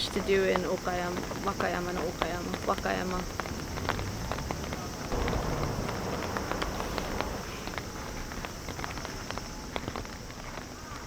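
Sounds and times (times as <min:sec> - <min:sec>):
heavy rain falling: 0:00.0 - 0:11.0
raindrops tapping on surfaces: 0:00.0 - 0:11.0.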